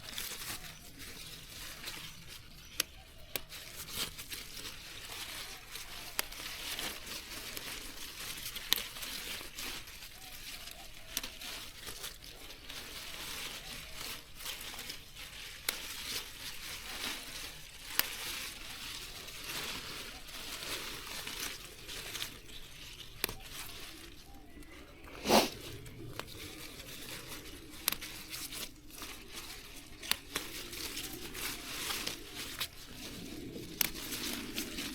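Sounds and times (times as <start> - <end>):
leaves rustling and tearing: 0.0 - 34.9
stems snapping: 0.1 - 34.9.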